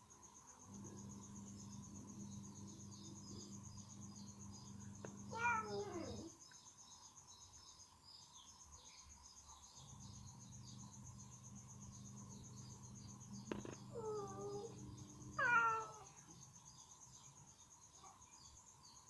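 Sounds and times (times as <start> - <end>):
crickets chirping: 0.0 - 19.0
cat meowing: 5.0 - 6.3, 13.5 - 16.2.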